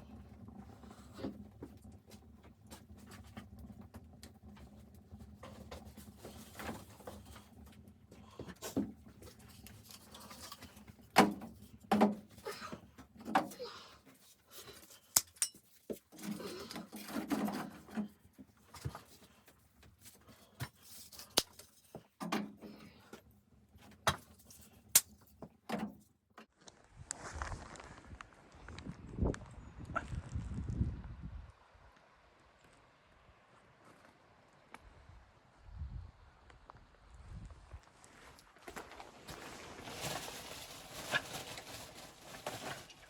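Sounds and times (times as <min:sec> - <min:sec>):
rustling: 0:38.1 - 0:43.0.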